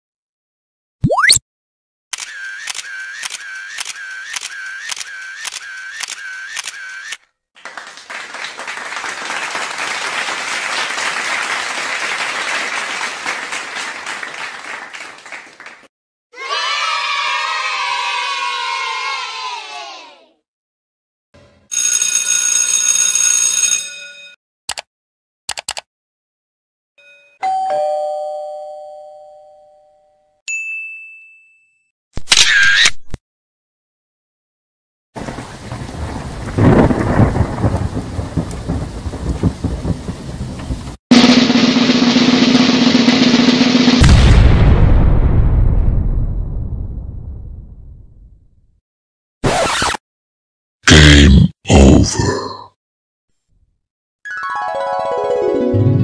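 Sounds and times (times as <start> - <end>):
camera shutter clicks: 2.2 - 7.2, 32.2 - 33.0
audience applauding: 7.6 - 15.9
computer mouse clicks: 25.5 - 25.9
doorbell ding-dong chime: 27.0 - 31.9
single high ding: 30.5 - 31.8.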